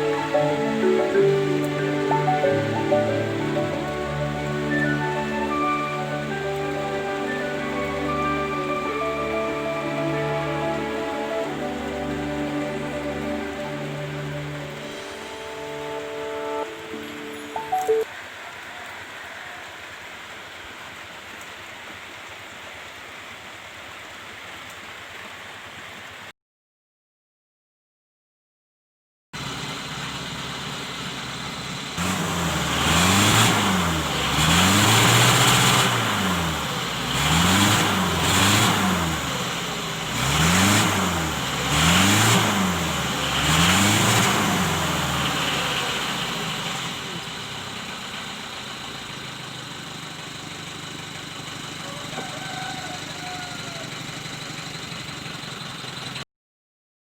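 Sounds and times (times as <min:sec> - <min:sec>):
car engine revving: 0:00.0 - 0:17.5, 0:29.4 - 0:51.4
car engine idling: 0:00.0 - 0:17.6, 0:29.4 - 0:56.2.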